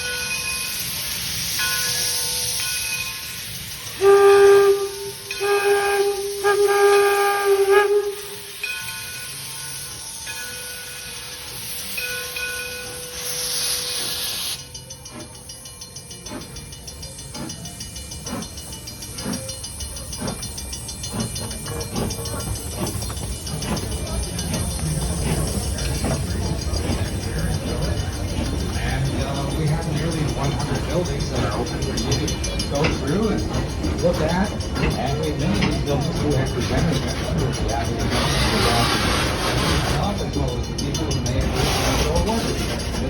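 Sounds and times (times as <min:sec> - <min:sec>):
steady steam hiss: 0:00.0 - 0:43.0
steam locomotive exhaust beats: 0:00.0 - 0:43.0
steam locomotive whistle blasts: 0:03.8 - 0:08.8.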